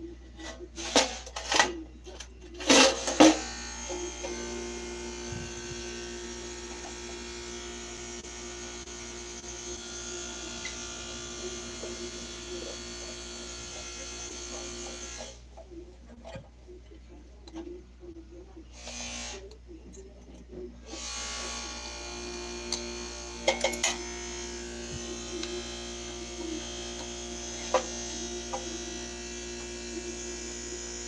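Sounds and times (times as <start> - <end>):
small electric motor humming: 2.6 - 15.5, 18.7 - 19.6, 20.8 - 31.0.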